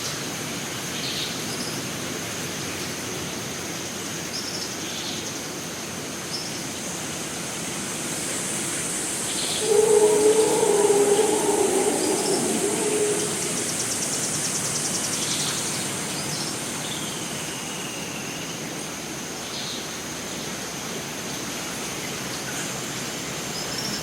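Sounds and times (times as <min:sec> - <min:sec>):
hiss of water: 0:06.9 - 0:23.6
high insect drone: 0:08.7 - 0:15.8
faint bird calls: 0:09.6 - 0:14.2
rapid insect pulse: 0:09.6 - 0:14.6.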